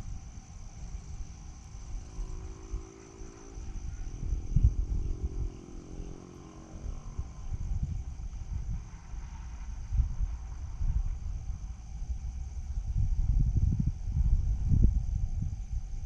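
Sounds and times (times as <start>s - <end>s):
steady high whine: 0.0s - 16.0s
wind rumble on microphone: 0.0s - 16.0s
distant engine hum passing: 0.8s - 15.9s.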